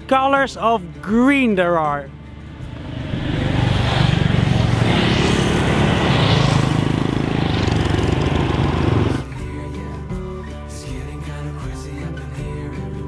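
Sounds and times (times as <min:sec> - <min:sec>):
wind rushing over microphone: 0:02.3 - 0:09.3
motorbike engine running: 0:06.8 - 0:09.3.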